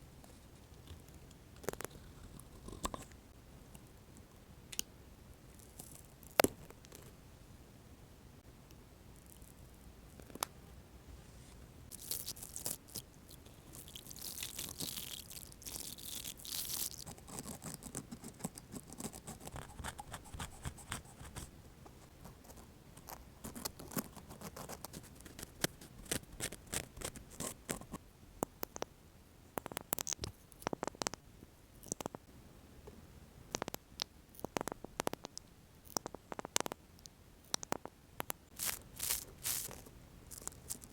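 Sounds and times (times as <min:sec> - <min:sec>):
brushing and crinkling: 0:38.5 - 0:40.9.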